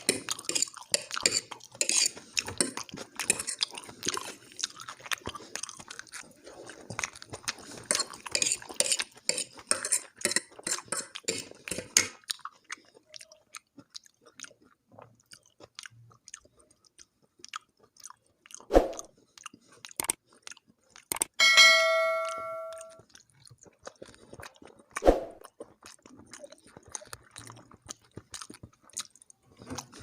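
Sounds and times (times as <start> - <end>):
close chewing of food: 0.0 - 21.4, 23.0 - 30.0
bright ringing chime: 21.4 - 23.0.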